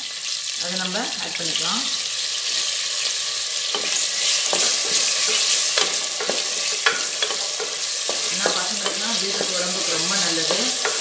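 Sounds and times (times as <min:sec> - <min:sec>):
onion and tomato sizzling in oil: 0:00.0 - 0:11.0
spatula scraping and knocking pot: 0:03.7 - 0:11.0.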